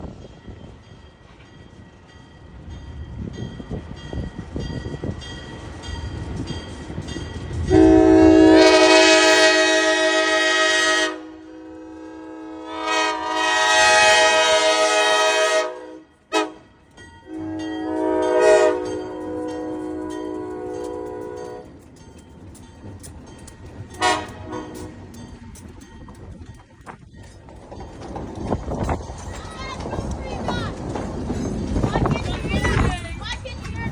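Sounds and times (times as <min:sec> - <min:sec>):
steam locomotive rumbling: 0:00.0 - 0:33.9
train chime whistle blasts: 0:07.7 - 0:16.6, 0:17.3 - 0:21.7, 0:24.0 - 0:24.9.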